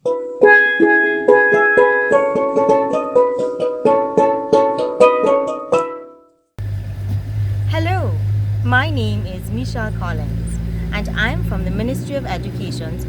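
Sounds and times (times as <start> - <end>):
steelpan notes: 0.1 - 6.0
steady low hum: 6.6 - 13.0.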